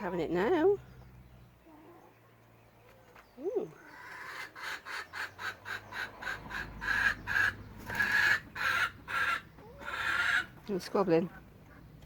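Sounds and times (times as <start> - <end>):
chicks cheeping and squawking: 1.3 - 10.6.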